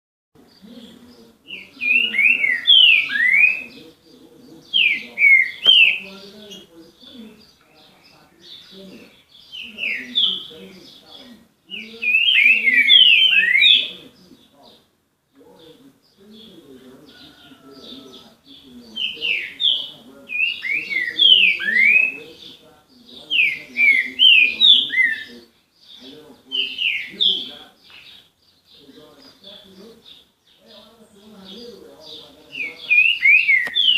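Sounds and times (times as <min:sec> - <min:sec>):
songbird singing whistled notes: 0:00.4 - 0:03.8, 0:04.6 - 0:14.3, 0:16.1 - 0:33.9
bird singing whistled notes: 0:04.7 - 0:06.1, 0:11.7 - 0:14.0, 0:18.9 - 0:22.3, 0:23.2 - 0:28.8, 0:32.1 - 0:33.9.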